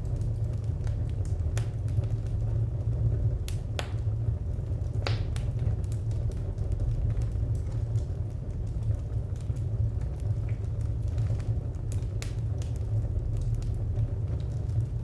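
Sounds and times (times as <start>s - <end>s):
low rumble of fire: 0.0s - 15.0s
wood fire crackling and popping: 0.0s - 15.0s.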